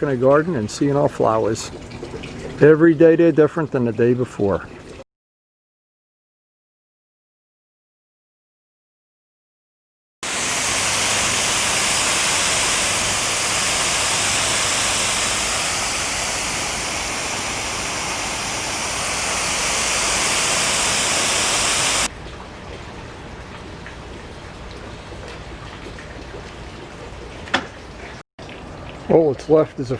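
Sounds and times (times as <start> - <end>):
falling water rushing: 10.2 - 22.1.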